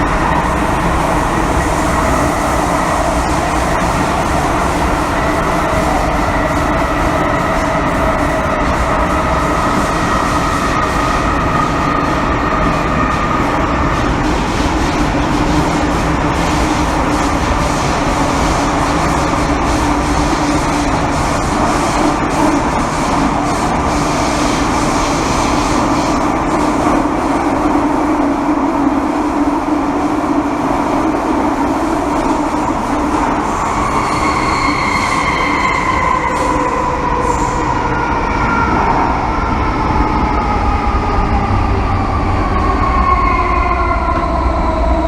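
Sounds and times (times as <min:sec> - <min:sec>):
train wheel and rail rumble: 0:00.0 - 0:45.0
train drive whining tones: 0:31.1 - 0:40.8.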